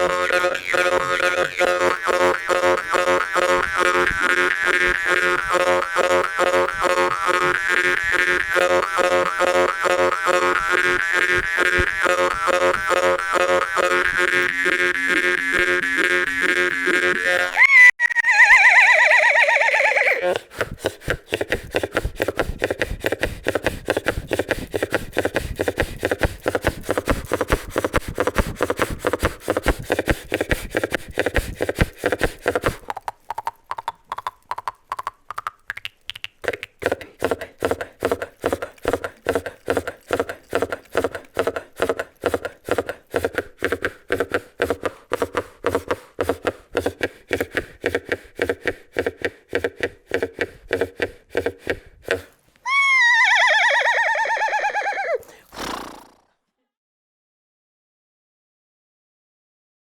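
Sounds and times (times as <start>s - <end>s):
twanging drone: 0.0s - 17.6s
jaw harp galloping rhythm: 0.0s - 55.6s.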